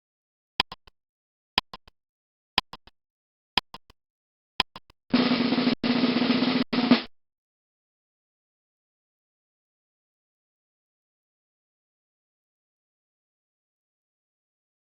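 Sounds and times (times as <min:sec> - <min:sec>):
timer ticking: 0:00.6 - 0:01.0, 0:01.6 - 0:02.0, 0:02.6 - 0:03.0, 0:03.6 - 0:04.0, 0:04.6 - 0:05.0.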